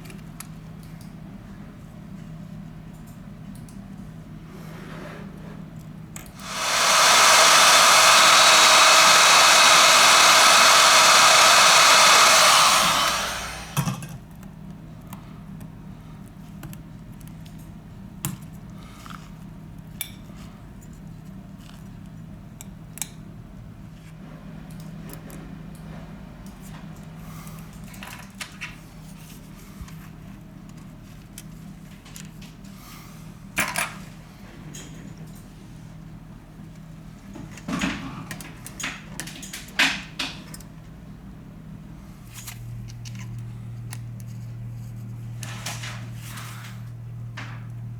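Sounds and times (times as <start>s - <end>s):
hot-air blower running: 6.3s - 14.2s.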